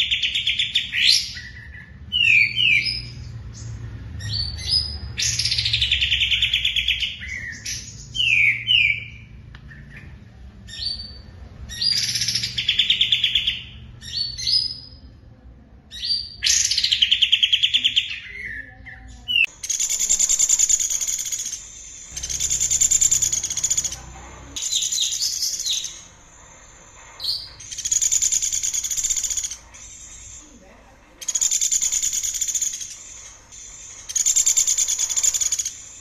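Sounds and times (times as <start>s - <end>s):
songbird singing trills: 15.9s - 30.5s, 31.2s - 36.0s.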